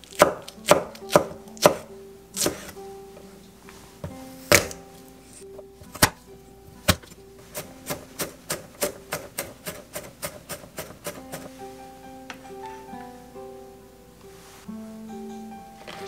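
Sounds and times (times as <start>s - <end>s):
cleaver chopping: 0.2s - 1.8s, 2.4s - 2.7s, 4.5s - 4.8s, 5.8s - 6.2s, 6.9s - 11.5s.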